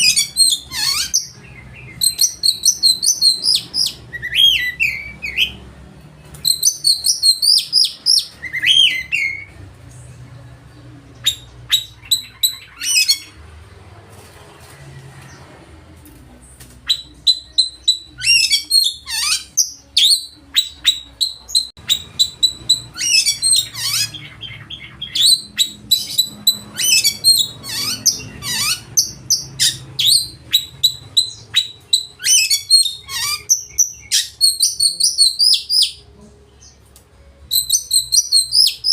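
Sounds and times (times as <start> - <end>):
bird singing loudly: 0.0 - 5.6, 6.5 - 9.5, 16.9 - 36.0, 37.5 - 38.9.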